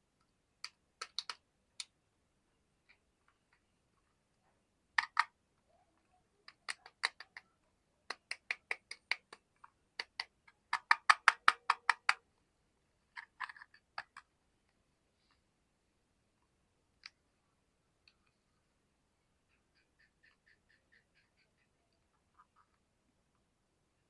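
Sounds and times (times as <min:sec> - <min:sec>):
fidget toy clicking: 0:05.0 - 0:05.3, 0:10.0 - 0:12.2.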